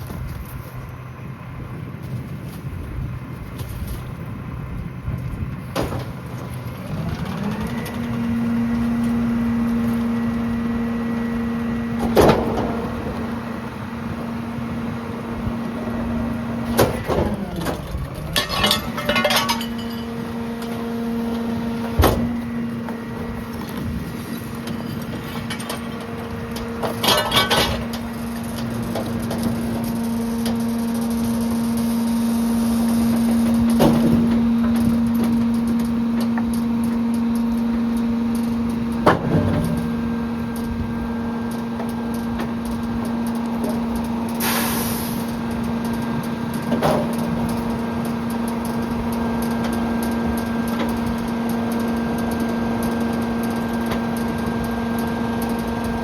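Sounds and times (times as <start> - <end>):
hydraulic packer cycling: 3.7 - 56.0
garbage truck engine revving: 4.9 - 56.0
metal bangs and clanks: 12.0 - 13.3, 16.7 - 20.9, 24.6 - 30.6, 33.1 - 36.4.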